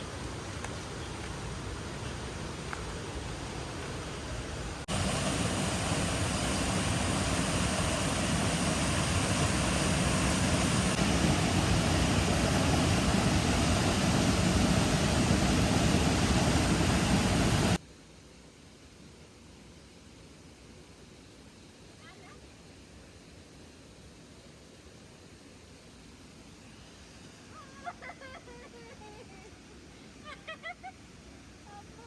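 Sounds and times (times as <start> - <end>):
stream flowing over rocks: 1.3 - 17.8.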